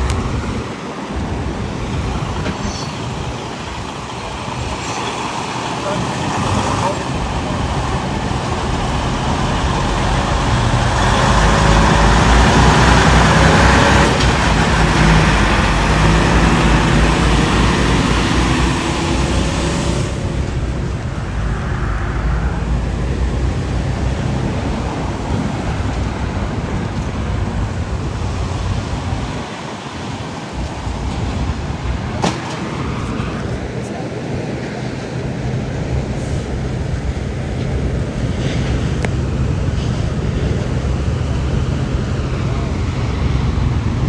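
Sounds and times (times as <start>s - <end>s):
vehicle engine running: 0.0s - 29.4s
rushing hiss: 0.0s - 36.7s.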